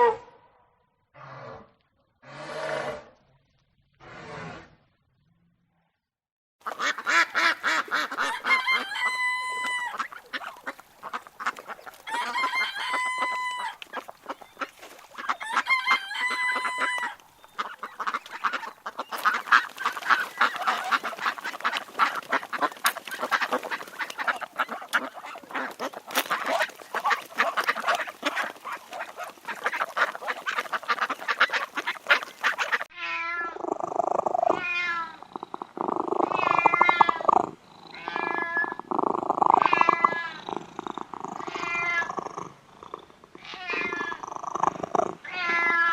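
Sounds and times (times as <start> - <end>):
ducks quacking: 6.6 - 32.9
cat meowing: 32.9 - 33.6, 34.5 - 35.2, 36.3 - 37.3, 37.9 - 38.8, 39.6 - 40.4, 41.4 - 42.2, 43.4 - 44.2, 45.2 - 45.9.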